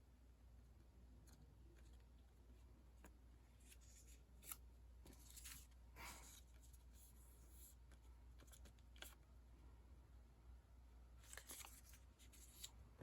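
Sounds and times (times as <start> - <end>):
quiet room hum: 0.0 - 13.0
sticker sheets rustling: 11.2 - 12.8.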